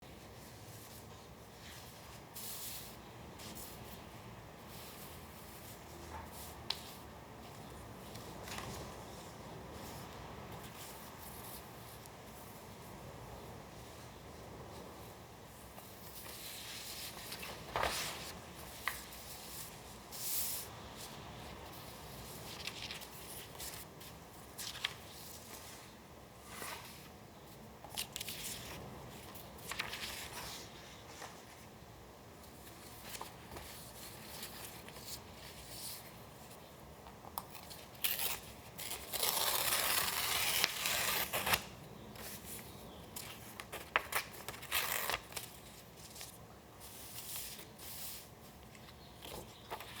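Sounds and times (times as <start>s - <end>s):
paper rustling and crinkling: 15.8s - 27.2s, 27.9s - 31.7s, 37.5s - 50.0s
paper tearing: 38.0s - 41.7s.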